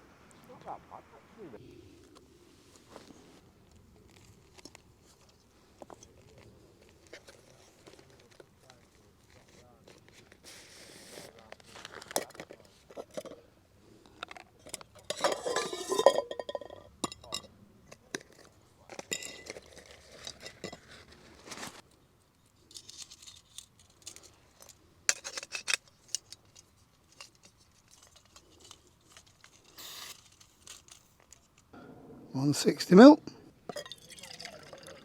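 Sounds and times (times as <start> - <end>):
rustling: 0.0 - 13.4, 18.3 - 31.8
metal cookware clinking: 14.7 - 17.5.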